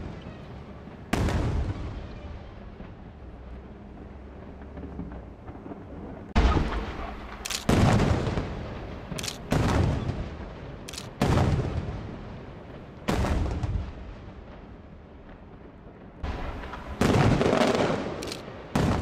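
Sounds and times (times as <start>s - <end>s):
sharp thin crack: 18.2s - 18.4s.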